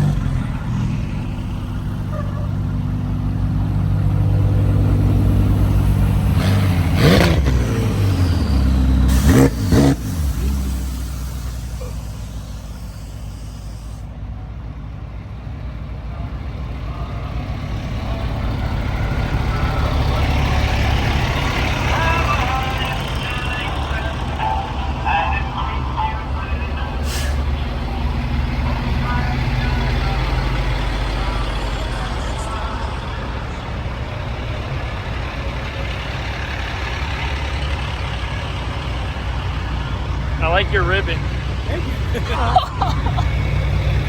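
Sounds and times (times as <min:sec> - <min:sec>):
car engines idling: 0:00.0 - 0:44.0
engine rev blips: 0:04.2 - 0:14.0.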